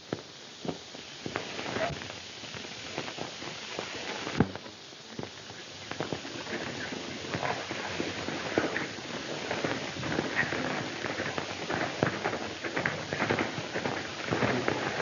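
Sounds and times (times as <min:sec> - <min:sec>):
old film soundtrack hiss: 0:00.0 - 0:15.0
horse hooves clopping: 0:05.9 - 0:15.0.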